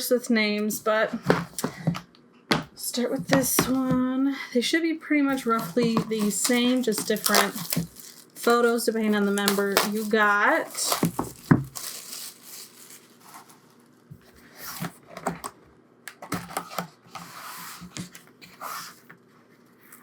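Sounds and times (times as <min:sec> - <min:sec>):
packaging rustling and crinkling: 0:05.3 - 0:15.4.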